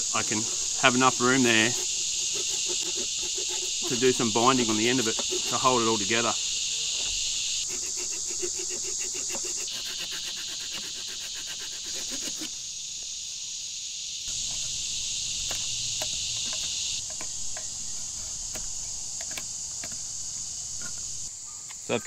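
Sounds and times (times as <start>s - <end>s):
insects buzzing: 0.0s - 22.0s
blade cutting into wood: 0.4s - 6.2s, 7.0s - 12.5s.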